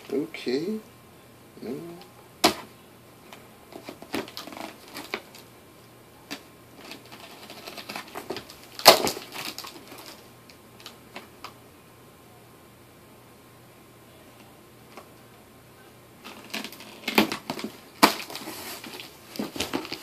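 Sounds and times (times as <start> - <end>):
plastic package crinkling: 3.7 - 5.5, 6.3 - 11.5, 16.2 - 20.0.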